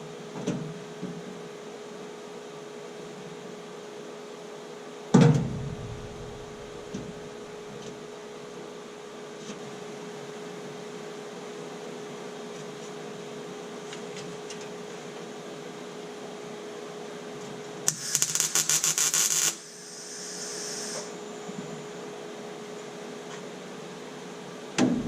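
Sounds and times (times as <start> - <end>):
steady low hum: 5.4 - 7.8
spray can hissing: 17.9 - 21.1.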